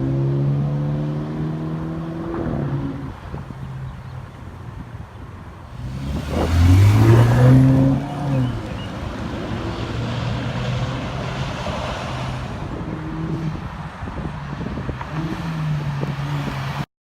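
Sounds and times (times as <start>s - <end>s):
car engine revving: 5.7s - 16.8s.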